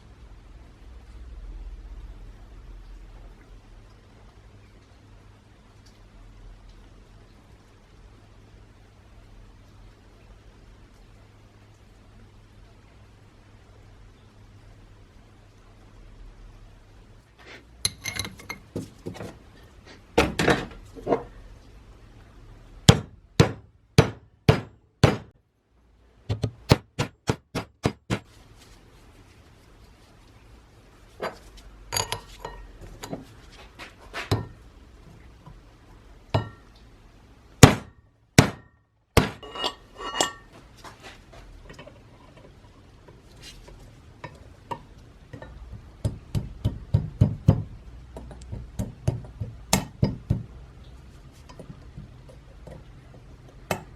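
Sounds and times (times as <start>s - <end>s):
hammer tapping on metal: 44.2s - 50.5s.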